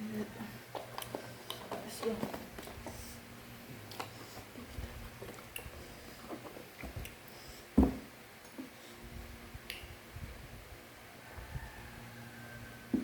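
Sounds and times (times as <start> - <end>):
dull thump: 7.8 - 8.1.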